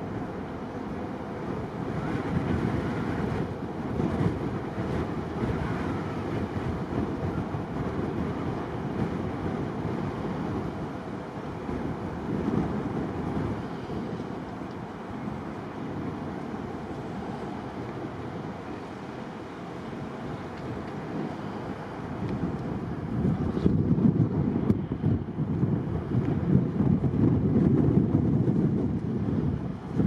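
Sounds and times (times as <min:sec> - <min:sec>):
distant jet engines roaring: 0:00.0 - 0:30.0
strong wind buffeting microphone: 0:00.0 - 0:30.0.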